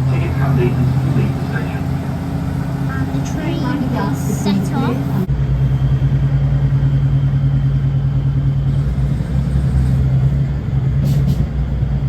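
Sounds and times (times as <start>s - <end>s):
train interior low drone: 0.0s - 12.0s.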